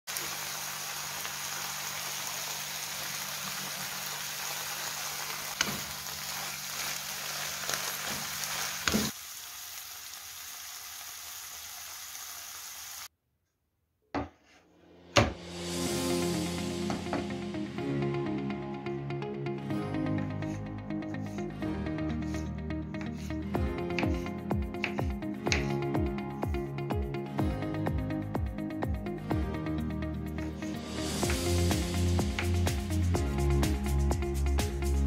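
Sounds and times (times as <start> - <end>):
mushrooms sizzling in a frying pan: 0.1 - 13.1.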